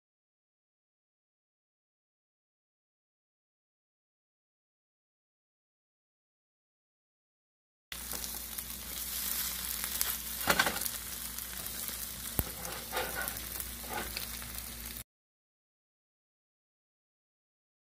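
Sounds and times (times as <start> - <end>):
bread sizzling in a pan: 7.9 - 15.0
spatula clicking and scraping pan: 9.3 - 14.4.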